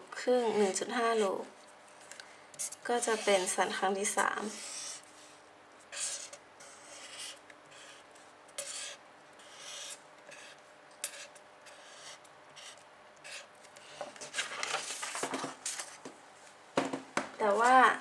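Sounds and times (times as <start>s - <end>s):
pen scratching on paper: 2.6s - 5.1s, 5.9s - 13.5s.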